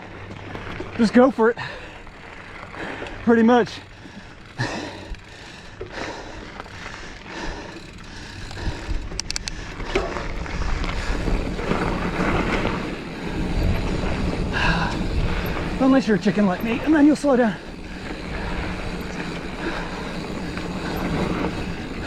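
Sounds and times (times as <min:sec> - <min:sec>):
bike tyres rolling on dirt: 0:00.0 - 0:22.0
wind buffeting microphone: 0:06.6 - 0:16.9, 0:17.6 - 0:22.0
sharp clicks or rattles: 0:07.6 - 0:10.2.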